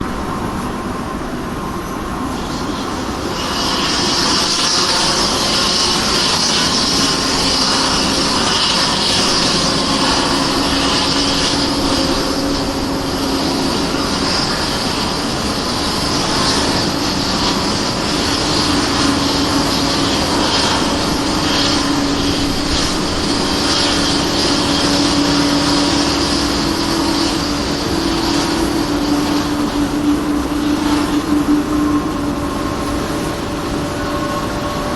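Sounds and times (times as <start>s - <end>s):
jet engine whine rising: 0.0s - 34.9s
loud air hiss: 0.0s - 34.9s.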